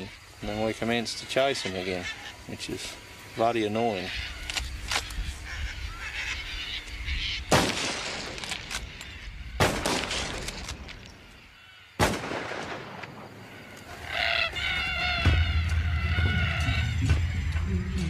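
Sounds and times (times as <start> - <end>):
cockatoos calling: 0.0 - 12.0, 13.2 - 18.0
rifle shots echoing: 7.5 - 8.9, 9.6 - 10.8, 12.0 - 13.4.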